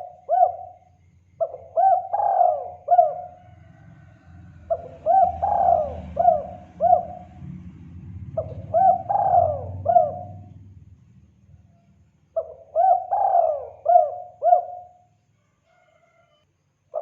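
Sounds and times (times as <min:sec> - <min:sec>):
dove cooing: 0:00.0 - 0:07.5, 0:08.3 - 0:10.6, 0:12.4 - 0:15.1.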